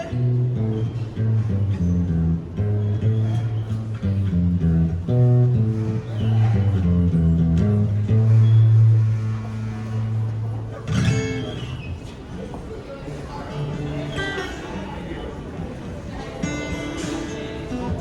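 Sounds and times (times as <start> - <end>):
bass line: 0.0 - 11.4
instrumental guitar music: 0.0 - 12.1, 13.5 - 18.0.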